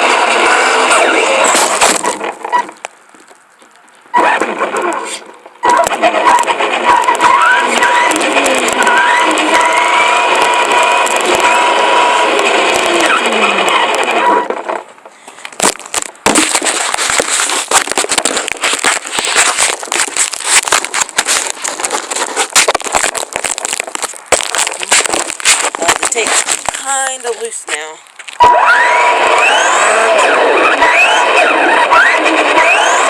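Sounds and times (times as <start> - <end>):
dense crackling clicks: 0.0 - 33.0
electric rc car motor whining: 5.6 - 14.5, 28.4 - 33.0.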